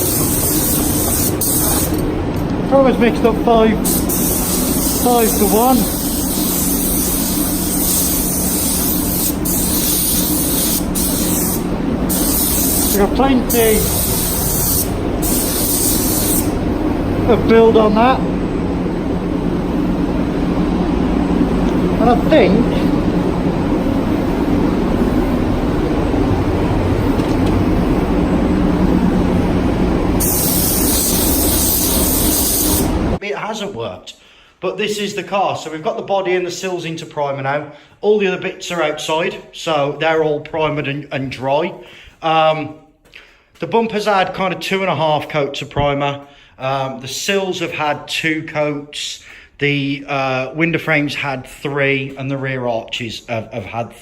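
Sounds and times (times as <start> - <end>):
spray gun hissing: 0.0 - 2.1, 2.8 - 18.1, 27.6 - 33.2
low steady hum: 0.0 - 34.0
workshop fan drone: 0.0 - 54.0.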